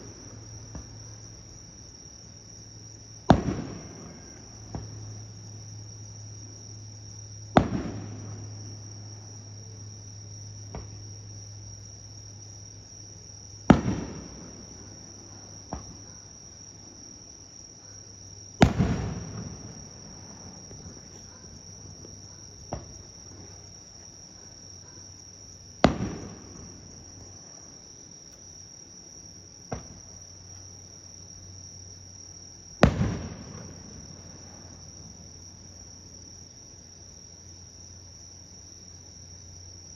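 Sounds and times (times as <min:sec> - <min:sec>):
insect trill: 0:00.0 - 0:39.9
firework bursting bang: 0:03.3 - 0:05.0, 0:07.6 - 0:08.6, 0:13.7 - 0:14.9, 0:18.6 - 0:24.0, 0:25.8 - 0:27.2, 0:32.8 - 0:34.4
firework launch thump: 0:03.3 - 0:05.0, 0:07.6 - 0:08.5, 0:10.7 - 0:11.0, 0:13.7 - 0:14.6, 0:15.6 - 0:16.1, 0:18.6 - 0:24.0, 0:25.8 - 0:27.0, 0:29.7 - 0:30.0, 0:32.8 - 0:34.0.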